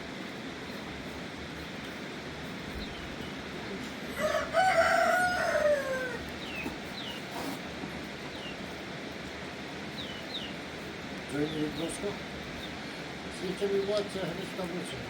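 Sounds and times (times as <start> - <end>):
small birds chirping: 0.1 - 15.0
rooster crowing: 4.0 - 6.6.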